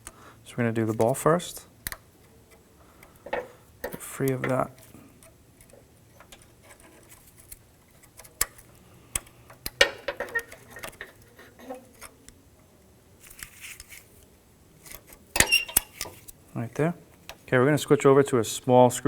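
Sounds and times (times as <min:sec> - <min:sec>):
metal latch clicking and rattling: 0:09.5 - 0:12.2, 0:15.4 - 0:16.2.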